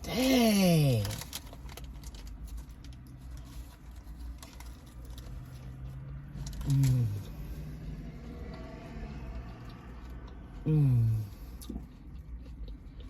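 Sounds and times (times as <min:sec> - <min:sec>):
wet chewing: 0:01.1 - 0:13.0
person humming mm: 0:06.6 - 0:07.3, 0:10.6 - 0:11.3.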